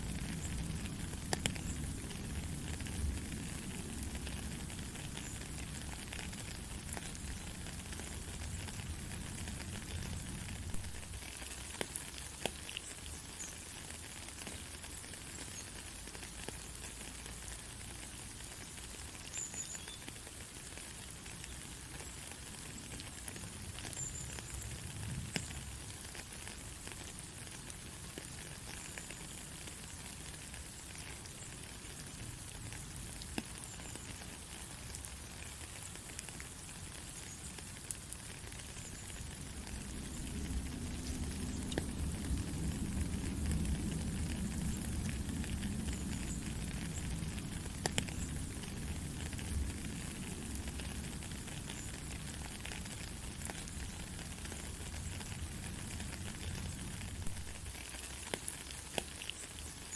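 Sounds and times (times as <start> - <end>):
steady rain hiss: 0.0 - 59.9
sharp drip ticks: 0.2 - 3.2, 28.1 - 56.8.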